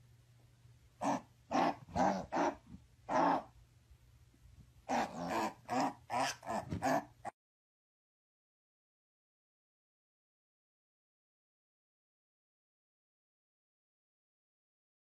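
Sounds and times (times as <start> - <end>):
dog growling: 1.0 - 3.5, 4.9 - 7.4.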